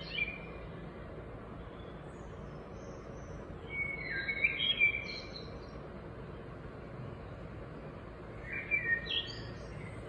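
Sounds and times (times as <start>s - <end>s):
bird chirping: 0.0s - 0.7s, 1.6s - 6.4s, 8.4s - 10.0s
low background noise: 0.0s - 10.0s.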